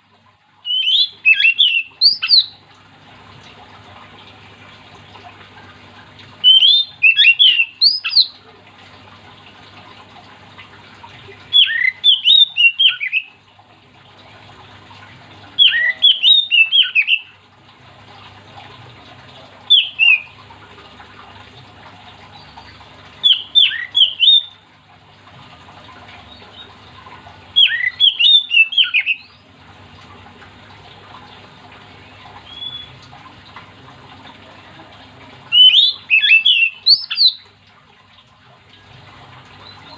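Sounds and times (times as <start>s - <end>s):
faint steady hum: 0.0s - 39.9s
bird singing whistled phrases: 0.7s - 2.6s, 6.4s - 8.4s, 11.5s - 13.3s, 15.6s - 17.3s, 19.7s - 20.3s, 23.2s - 24.5s, 27.6s - 29.4s, 32.4s - 33.0s, 35.5s - 37.4s.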